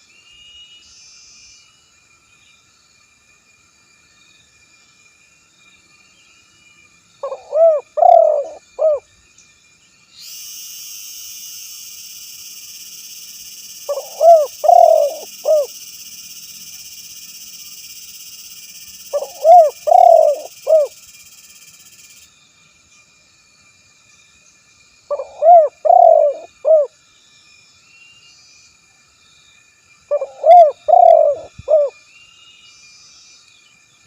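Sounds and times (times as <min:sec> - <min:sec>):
steady high hiss: 0:00.0 - 0:34.0
dove cooing: 0:07.2 - 0:09.0, 0:13.9 - 0:15.7, 0:19.1 - 0:20.9, 0:25.1 - 0:26.9, 0:30.1 - 0:31.9.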